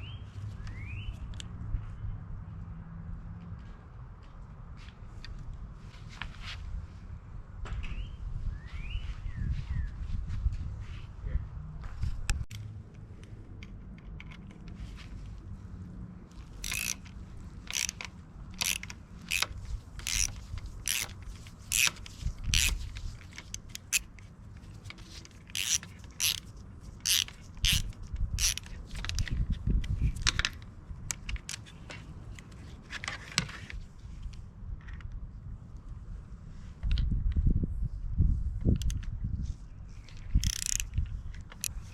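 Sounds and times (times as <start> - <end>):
hand tools clicking and scraping: 16.3 - 33.7, 40.1 - 41.9.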